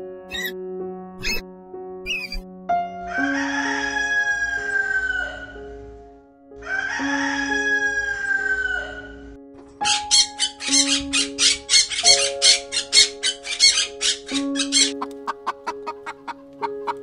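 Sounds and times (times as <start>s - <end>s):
background music: 0.0s - 17.0s
rooster crowing: 3.1s - 5.6s, 6.6s - 9.2s.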